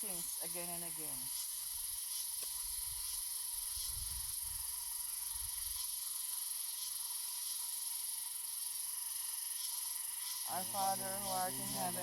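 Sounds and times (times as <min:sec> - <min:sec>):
insects chirring drone: 0:00.0 - 0:12.0
faint pulsing chirp: 0:10.1 - 0:12.0.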